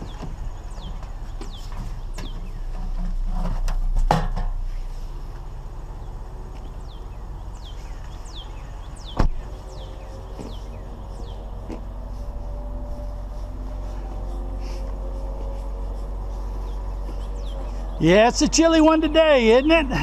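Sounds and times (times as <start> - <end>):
bird chirping: 0.0 - 3.1, 4.6 - 20.0
low rumble: 0.0 - 20.0.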